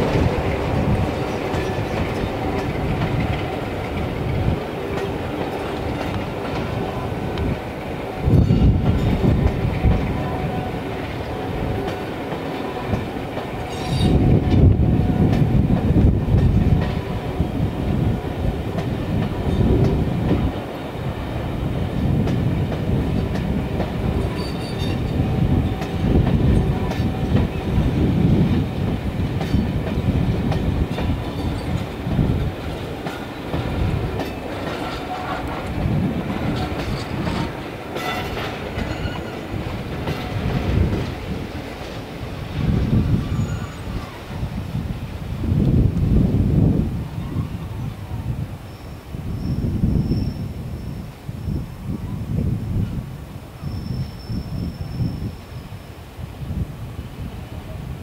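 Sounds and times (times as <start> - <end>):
train coaches rumbling past: 0.0 - 58.0
wheels clattering over rail joints: 29.3 - 42.2.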